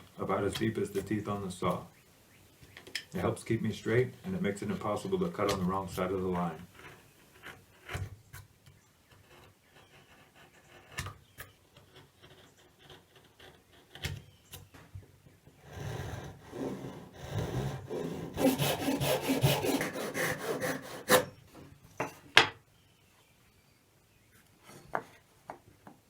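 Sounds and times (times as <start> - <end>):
hand tool scraping wood: 3.1 - 14.3, 15.6 - 21.7.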